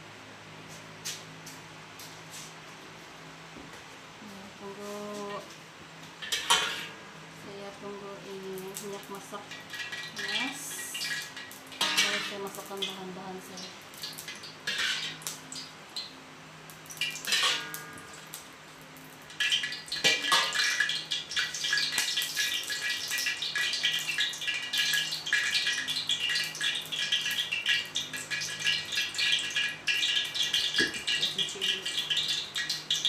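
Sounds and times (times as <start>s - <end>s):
utensil clinking on pan: 6.2s - 7.0s, 11.1s - 12.9s, 17.2s - 18.2s
paste sizzling in oil: 8.7s - 15.7s, 19.2s - 33.0s.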